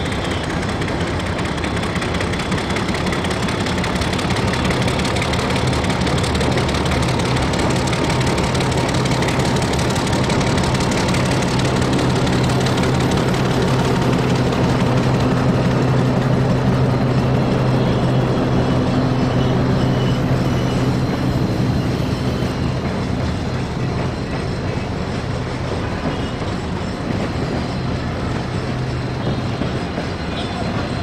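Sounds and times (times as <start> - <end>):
diesel locomotive engine droning: 0.0 - 31.0
freight wagons rumbling on track: 0.0 - 31.0.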